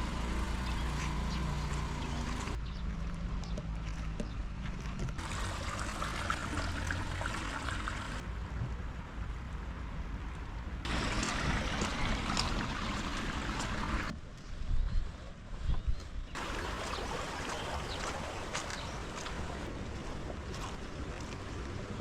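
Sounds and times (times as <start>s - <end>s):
steady rain falling: 16.4s - 19.7s.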